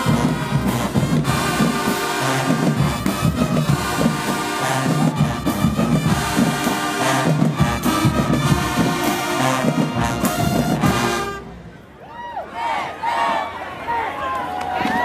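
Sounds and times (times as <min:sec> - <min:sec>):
marching band playing: 0:00.0 - 0:11.8.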